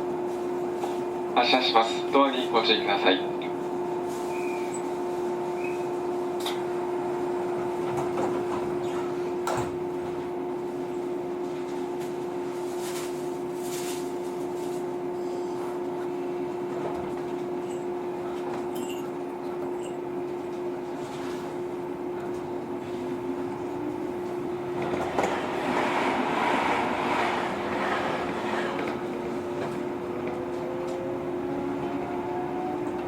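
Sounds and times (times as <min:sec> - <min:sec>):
train electrical hum: 0:00.0 - 0:33.0
faint rising train tone: 0:03.8 - 0:06.2, 0:22.7 - 0:33.0
sliding doors knocking shut: 0:24.7 - 0:30.4.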